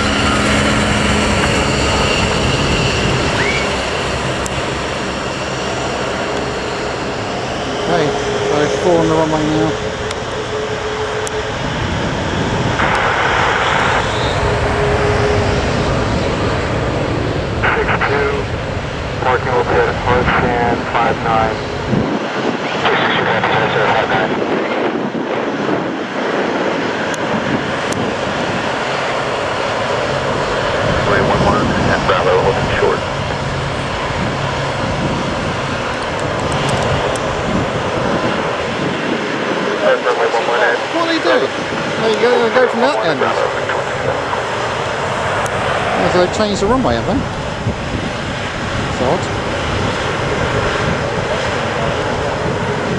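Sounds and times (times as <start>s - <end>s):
low hum: 0.0s - 22.1s
jet engine roar: 0.0s - 52.9s
jet engine whine: 0.0s - 52.9s.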